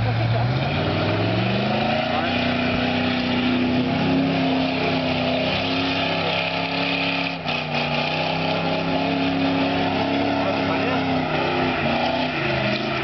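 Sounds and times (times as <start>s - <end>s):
car engine at high revs: 0.0s - 13.0s.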